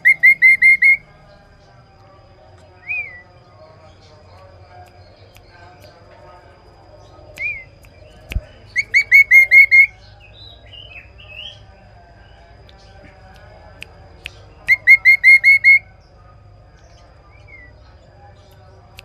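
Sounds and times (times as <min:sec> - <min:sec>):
bird whistled song: 0:00.0 - 0:01.1, 0:02.8 - 0:03.3, 0:07.3 - 0:11.6, 0:14.2 - 0:16.0.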